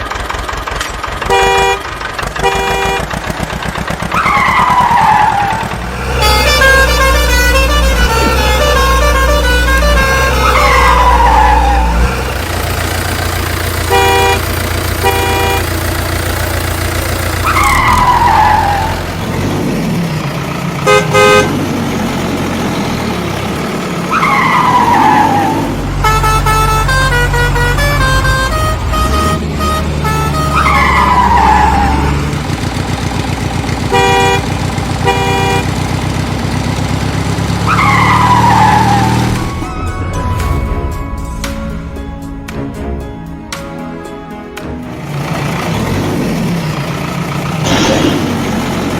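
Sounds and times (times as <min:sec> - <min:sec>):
truck engine rumble: 0:00.0 - 0:48.9
horn toots: 0:01.2 - 0:03.2, 0:04.1 - 0:16.4, 0:20.8 - 0:21.8, 0:24.1 - 0:32.4, 0:33.6 - 0:36.2.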